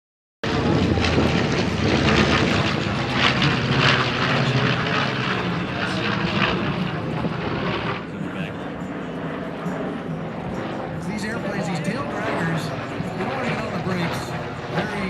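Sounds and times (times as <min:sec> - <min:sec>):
propeller airplane flying past: 0:00.4 - 0:15.0.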